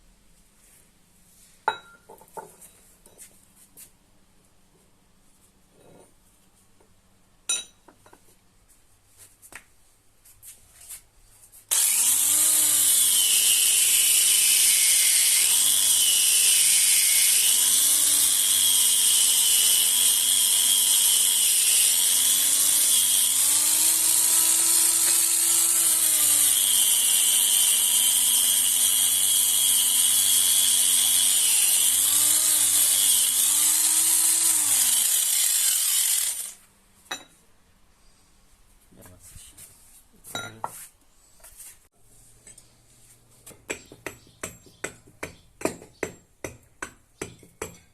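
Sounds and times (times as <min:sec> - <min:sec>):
electric grinder grinding metal: 0:11.7 - 0:36.6.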